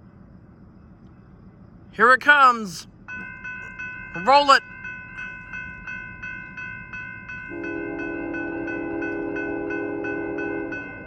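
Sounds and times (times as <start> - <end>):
crossing warning bell ringing: 2.0 - 11.0
locomotive air horn blast: 7.5 - 11.0.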